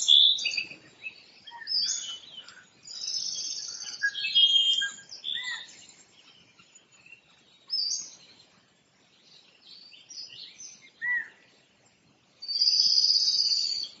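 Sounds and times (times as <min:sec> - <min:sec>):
songbirds chirping: 0:00.0 - 0:14.0
loud high bird trill: 0:01.4 - 0:06.6.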